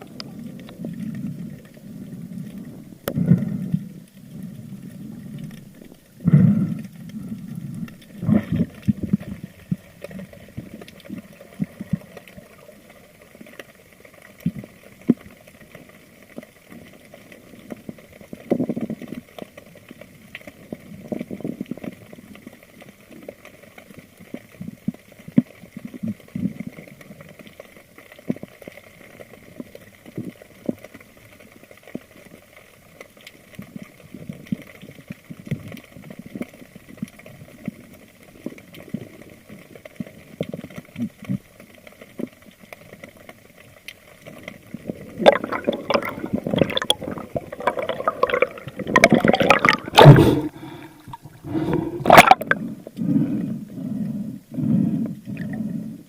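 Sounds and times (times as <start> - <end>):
water and bubbles swishing: 0.0 - 31.0, 33.6 - 56.0.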